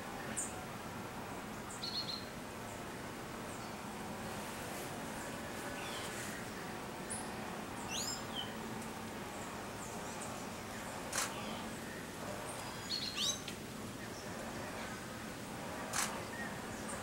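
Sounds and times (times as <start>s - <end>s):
steady background hiss: 0.0s - 17.0s
birds whistling calls: 7.9s - 8.6s, 12.6s - 14.3s
sharp click: 11.1s - 11.4s, 15.9s - 16.2s.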